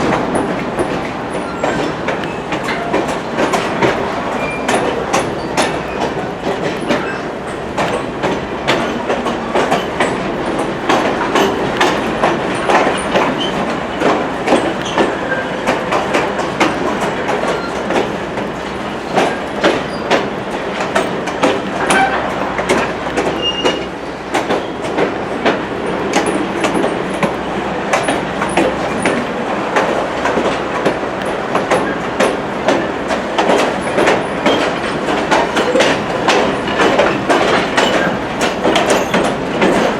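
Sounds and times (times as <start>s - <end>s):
train rumble: 0.0s - 39.9s
train wheels clickety-clack: 0.0s - 39.9s
high wheel squeals: 23.3s - 23.9s.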